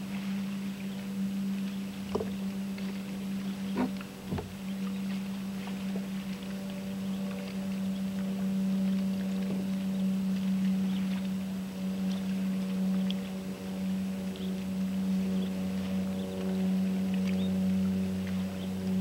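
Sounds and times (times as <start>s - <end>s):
steady low hum: 0.0s - 19.0s
paddle knocking on kayak hull: 2.1s - 2.4s, 3.7s - 4.8s.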